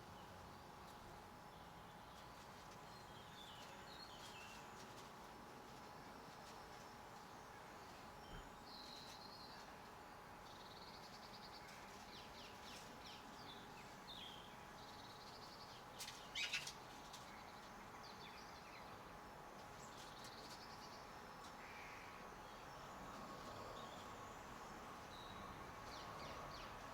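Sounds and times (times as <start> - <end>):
birds chirping and twittering: 6.4 - 26.9.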